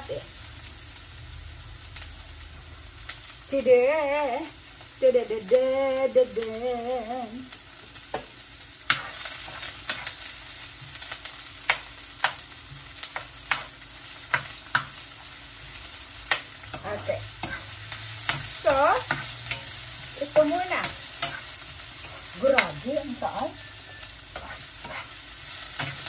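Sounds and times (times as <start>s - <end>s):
onions sizzling in frying pan: 0.0s - 26.0s
person humming: 3.5s - 7.5s
utensil clicking against pan: 13.1s - 13.7s.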